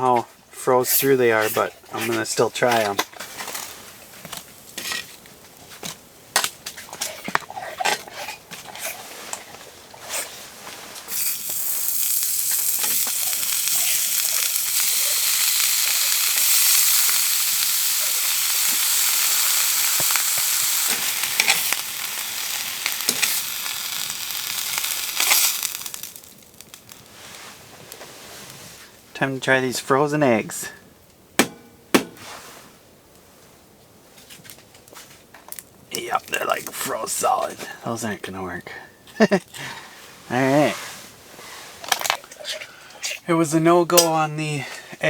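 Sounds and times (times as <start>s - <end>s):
bacon sizzling in a pan: 11.1s - 27.4s
pan and utensils clinking: 43.9s - 44.3s.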